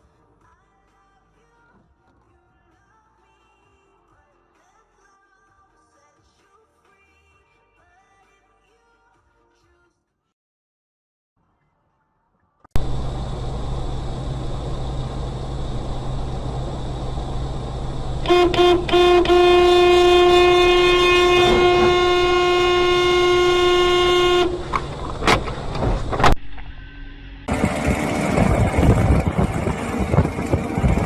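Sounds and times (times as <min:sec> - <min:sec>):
car road noise: 0:12.8 - 0:31.0
car horn toots: 0:18.2 - 0:25.4.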